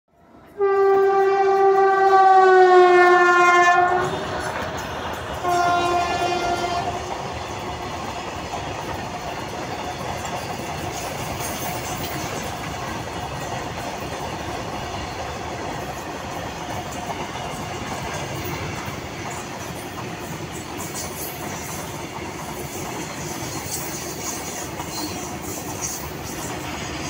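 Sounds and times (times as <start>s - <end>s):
locomotive horn blast: 0.6s - 4.2s, 5.4s - 7.1s
freight wagons rolling and clattering: 9.6s - 14.6s.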